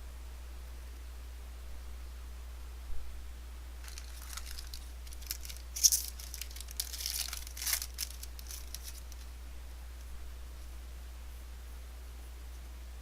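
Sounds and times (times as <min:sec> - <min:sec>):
wrapper tearing and crinkling: 0:03.8 - 0:09.3.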